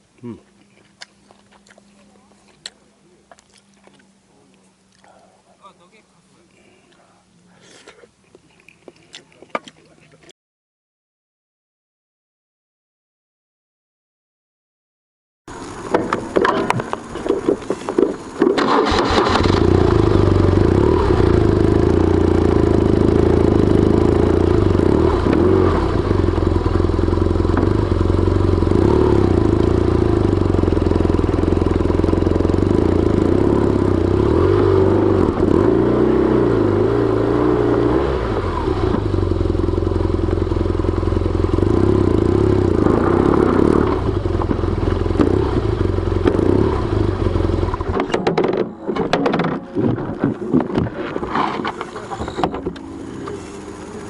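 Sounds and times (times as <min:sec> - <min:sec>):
motorcycle engine idling: 0:19.6 - 0:34.4, 0:38.3 - 0:48.0, 0:51.8 - 0:54.0.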